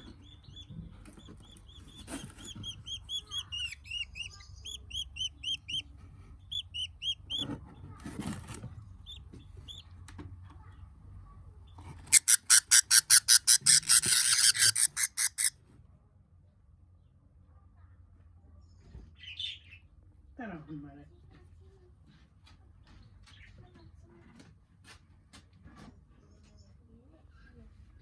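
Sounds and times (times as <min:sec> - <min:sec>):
budgies chirping: 0:00.0 - 0:07.6, 0:12.1 - 0:15.5
budgies harsh calls: 0:12.1 - 0:15.5.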